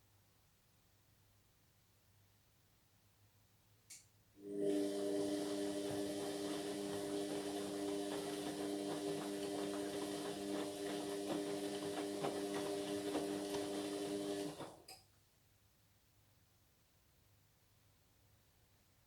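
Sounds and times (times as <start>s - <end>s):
washing machine motor hum: 4.4s - 14.9s
washing machine clicking and rattling: 4.7s - 14.9s.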